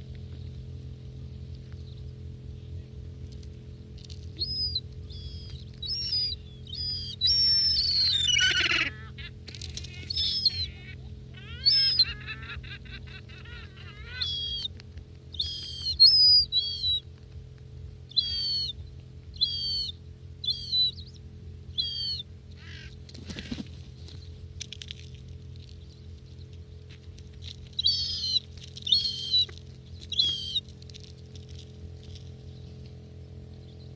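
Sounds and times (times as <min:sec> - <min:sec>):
gulls calling: 0:04.0 - 0:17.3, 0:18.0 - 0:24.2, 0:26.3 - 0:31.4.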